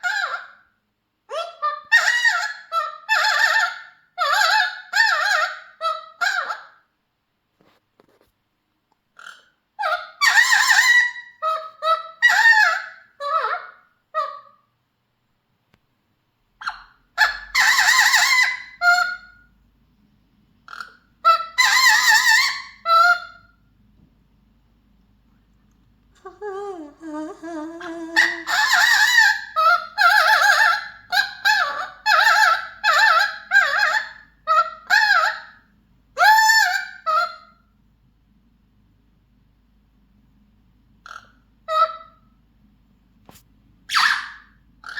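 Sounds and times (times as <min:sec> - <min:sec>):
parrot calling: 0:00.0 - 0:00.7, 0:01.3 - 0:06.8, 0:09.2 - 0:14.7, 0:16.6 - 0:19.5, 0:20.6 - 0:23.6, 0:26.2 - 0:37.7, 0:41.0 - 0:42.4, 0:43.9 - 0:44.9
parrot singing warbling notes: 0:26.2 - 0:35.4.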